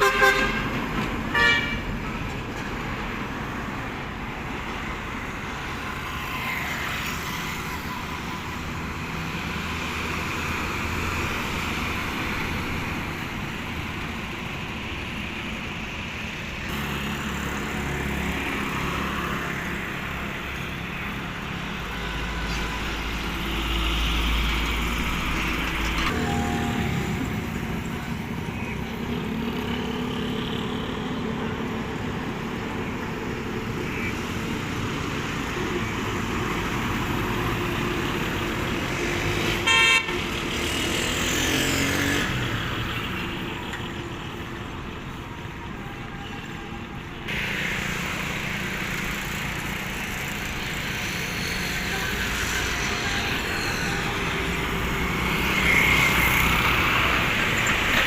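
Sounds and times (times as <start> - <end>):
loud car horn blast: 0.0 - 0.7, 1.3 - 1.8, 39.6 - 40.3
road traffic noise: 0.0 - 58.0
vehicle engine: 0.0 - 58.0.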